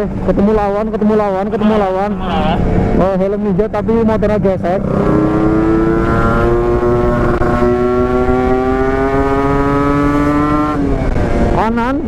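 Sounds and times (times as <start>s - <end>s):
two-stroke motorcycle accelerating: 2.6s - 12.0s.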